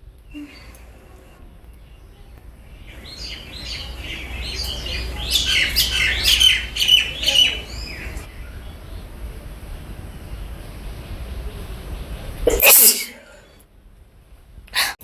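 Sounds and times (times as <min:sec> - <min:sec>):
bird chirping: 0:00.2 - 0:09.2.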